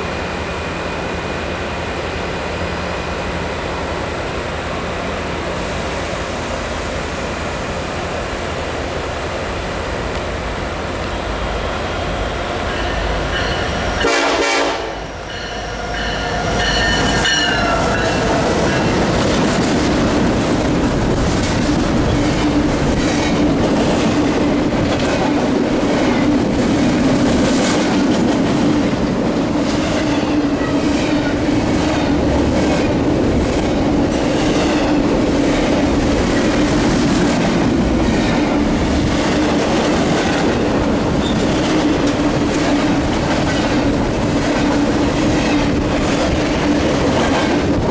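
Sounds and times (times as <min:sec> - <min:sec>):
freight train rolling past: 0:00.0 - 0:47.9
diesel locomotive horn: 0:12.4 - 0:19.0.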